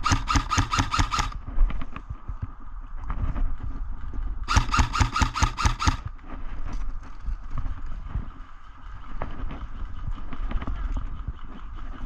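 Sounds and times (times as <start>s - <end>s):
airsoft gun shots: 0.0s - 1.4s, 4.5s - 6.0s.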